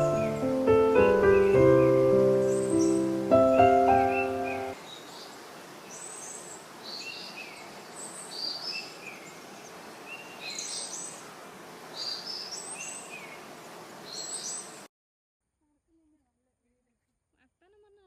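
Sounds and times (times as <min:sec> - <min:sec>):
piano music: 0:00.0 - 0:04.8
birds chirping: 0:00.0 - 0:14.8.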